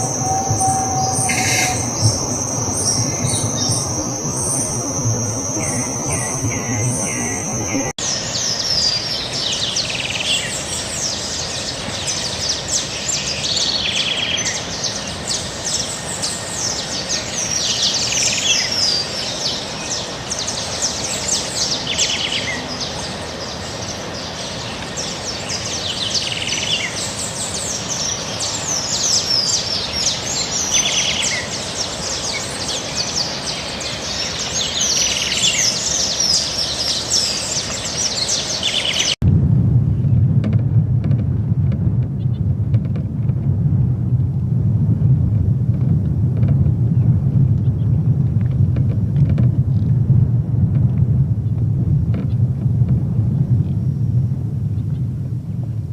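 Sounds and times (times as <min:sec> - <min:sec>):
birds chirping: 0:00.0 - 0:39.2
steady background noise: 0:00.0 - 0:39.4.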